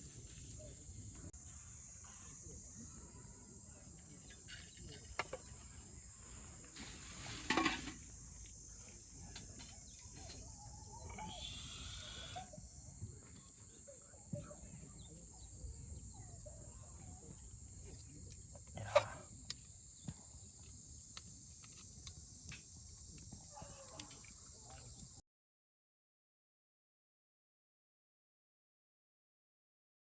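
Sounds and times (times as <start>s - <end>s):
high-pitched insect chorus: 0.0s - 25.2s.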